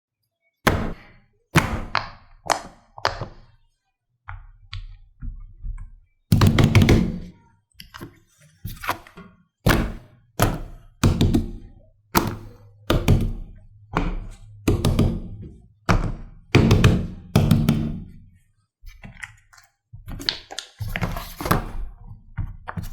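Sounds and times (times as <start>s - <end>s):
knocks and thuds: 6.3s - 7.3s, 12.2s - 18.2s.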